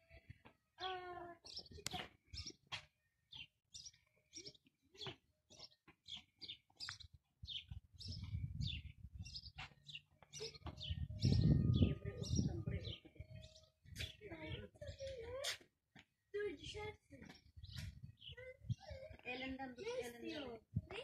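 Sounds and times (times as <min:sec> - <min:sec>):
small bird chirping: 0:01.4 - 0:15.2.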